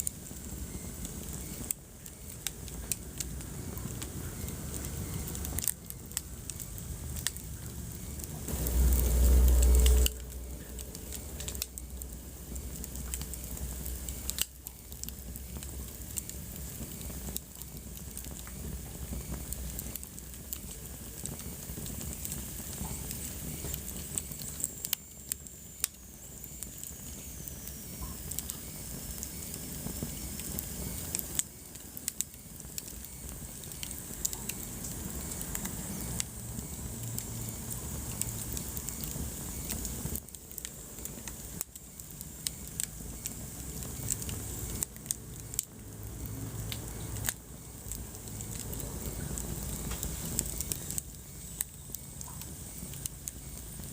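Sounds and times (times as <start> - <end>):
fire flames rumbling: 0.0 - 53.9
wood fire crackling and popping: 0.0 - 53.9
faint high whistle: 8.8 - 11.4.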